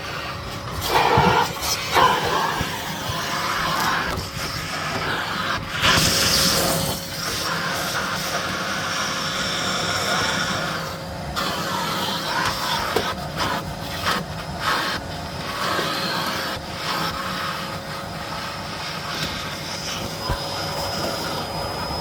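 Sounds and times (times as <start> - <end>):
vacuum cleaner motor whine: 0.0 - 22.0
vacuum floor head air rush: 0.0 - 22.0.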